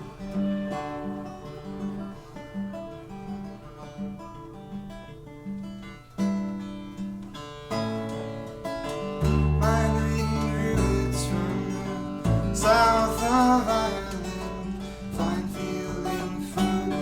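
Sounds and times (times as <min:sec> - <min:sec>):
acoustic guitar picking: 0:00.0 - 0:17.0
deep bass notes: 0:09.2 - 0:17.0.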